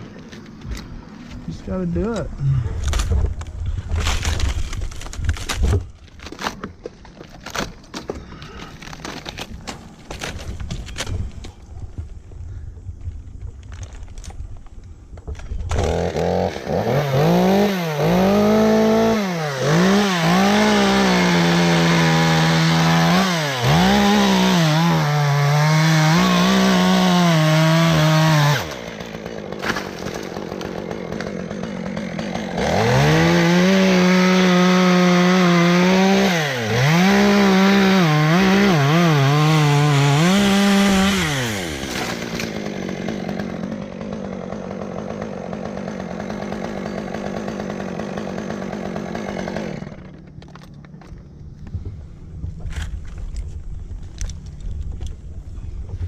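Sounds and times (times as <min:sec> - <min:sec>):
chainsaw running at high revs: 0:15.7 - 0:50.3.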